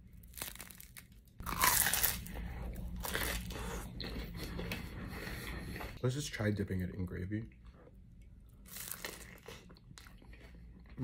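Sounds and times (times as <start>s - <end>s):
crunchy pie crust bitten: 0.2s - 2.3s
crunchy chewing: 0.3s - 6.0s.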